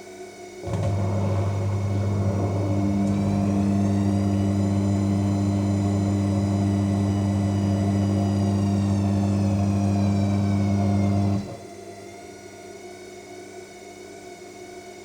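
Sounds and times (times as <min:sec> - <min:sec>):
drain pump low hum: 0:00.6 - 0:12.0
drum motor high whine: 0:00.6 - 0:12.0.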